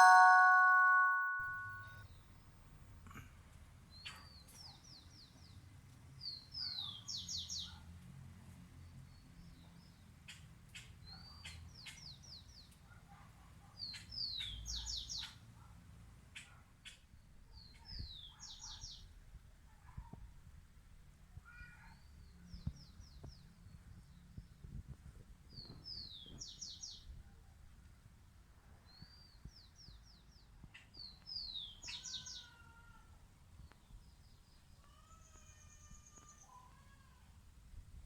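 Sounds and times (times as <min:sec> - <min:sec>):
chiming musical tone: 0:00.0 - 0:01.9.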